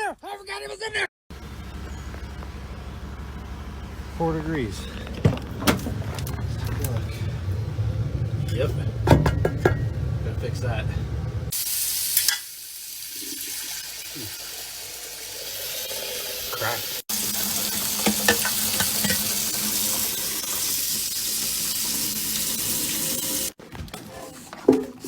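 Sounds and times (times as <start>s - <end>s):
water running: 4.6s - 23.6s.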